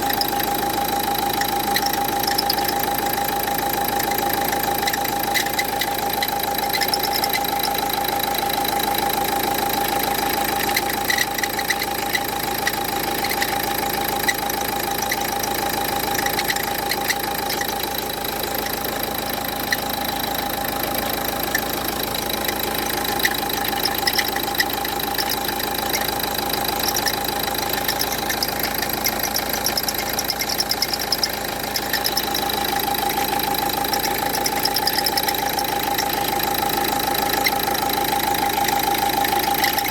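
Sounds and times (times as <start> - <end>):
constant high tone: 0.0 - 39.9
diesel engine idling: 0.0 - 39.9.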